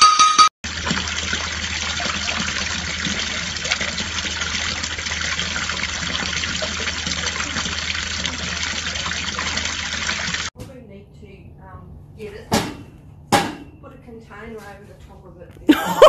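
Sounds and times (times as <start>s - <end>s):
running water: 0.6s - 10.5s.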